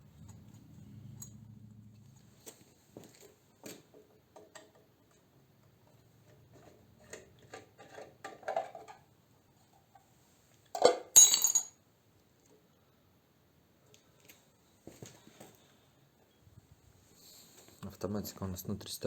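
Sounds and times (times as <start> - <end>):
metallic clatter with ringing clink: 10.8 - 11.8.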